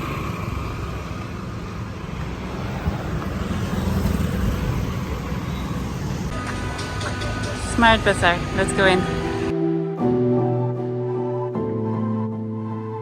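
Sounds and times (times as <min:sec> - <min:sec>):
road traffic rumble: 0:00.0 - 0:09.6.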